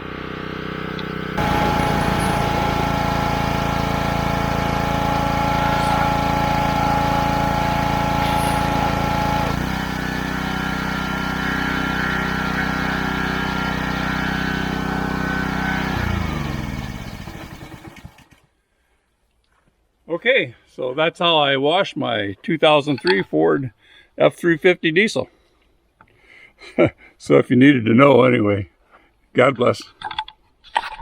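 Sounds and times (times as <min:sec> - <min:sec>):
power washer motor running: 0:01.0 - 0:18.4.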